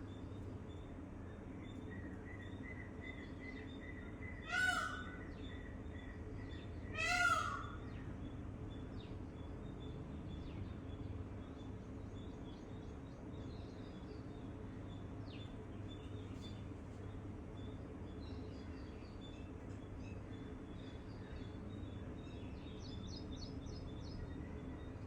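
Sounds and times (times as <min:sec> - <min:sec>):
low background hum: 0:00.0 - 0:25.0
loud harsh bird calls: 0:04.3 - 0:05.7, 0:06.9 - 0:08.1.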